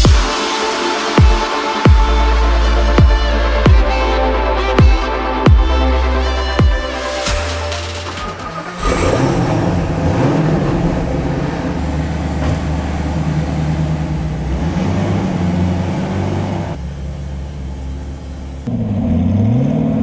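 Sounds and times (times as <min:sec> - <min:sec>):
road noise: 0:06.0 - 0:20.0
car engine running loudly: 0:07.2 - 0:20.0.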